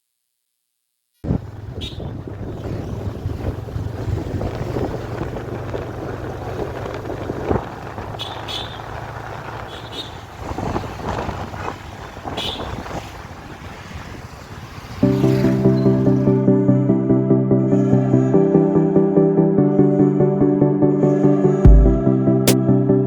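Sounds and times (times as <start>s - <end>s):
wind noise on microphone: 1.2s - 9.6s, 10.2s - 14.8s
motorcycle engine running: 1.4s - 9.8s.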